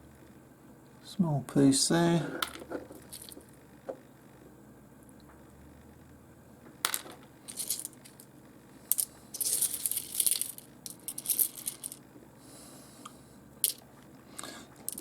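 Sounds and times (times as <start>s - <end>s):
stones clicking and rattling: 2.4s - 3.5s, 6.9s - 8.2s, 8.9s - 12.0s, 14.8s - 15.0s.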